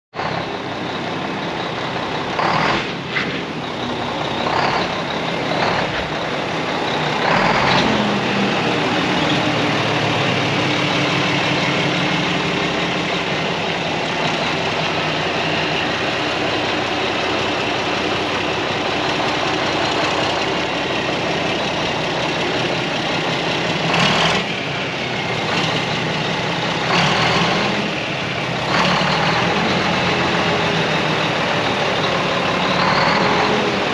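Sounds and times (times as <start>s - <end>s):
truck diesel engine running: 0.1s - 33.9s.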